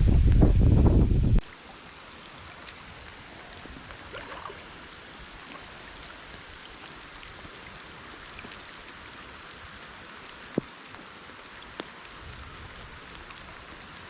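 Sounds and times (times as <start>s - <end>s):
steady rain falling: 1.4s - 14.0s.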